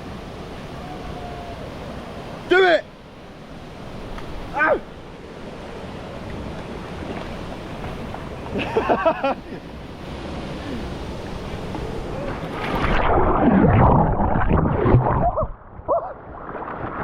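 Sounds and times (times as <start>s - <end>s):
waterfall rushing: 0.0s - 12.8s
water sloshing near microphone: 3.2s - 15.0s.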